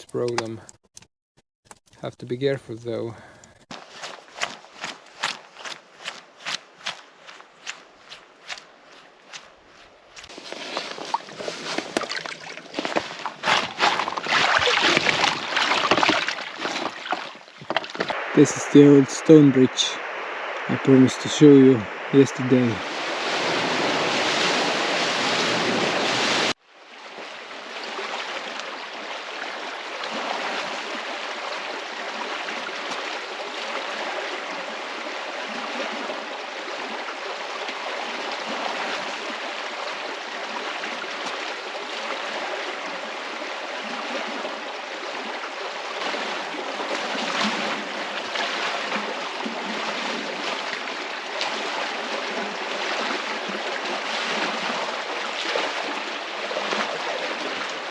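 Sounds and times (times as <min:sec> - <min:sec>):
river water rushing and splashing: 0:03.7 - 0:57.9
loud hissy noise: 0:18.2 - 0:24.1.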